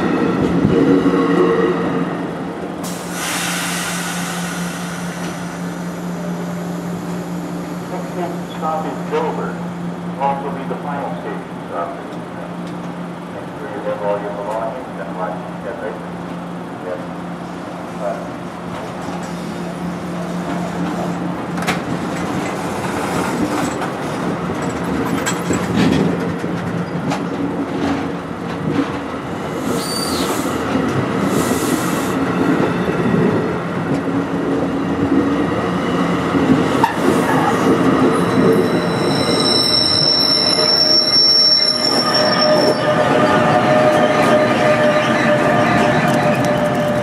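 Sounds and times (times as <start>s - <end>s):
train wheels rumbling on rail: 0.0s - 47.0s
high-pitched wheel squeal: 29.8s - 30.3s, 38.2s - 47.0s.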